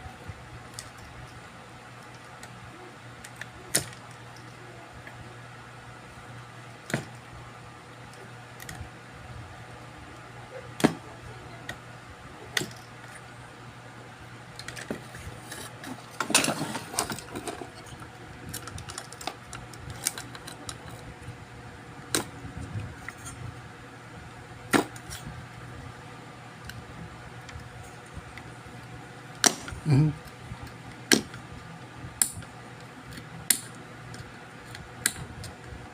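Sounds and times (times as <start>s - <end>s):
steady low hum: 0.0s - 35.9s
clattering and rustling: 14.7s - 18.0s.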